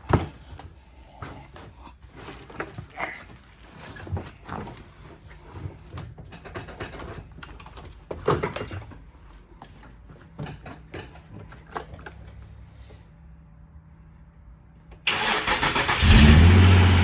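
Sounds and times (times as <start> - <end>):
clicks and knocks of handled objects: 0.0 - 12.6.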